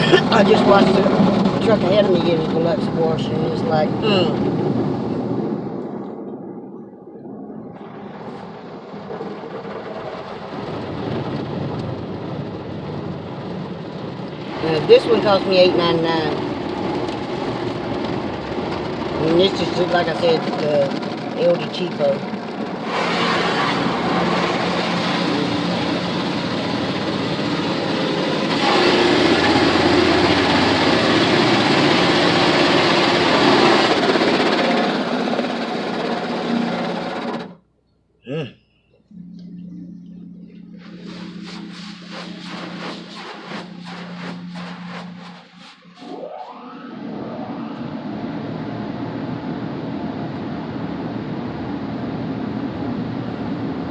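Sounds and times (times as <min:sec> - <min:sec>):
machinery noise with low hum: 0:00.0 - 0:37.6, 0:38.3 - 0:53.9
car wash water spray on car: 0:21.5 - 0:36.7, 0:40.8 - 0:46.1.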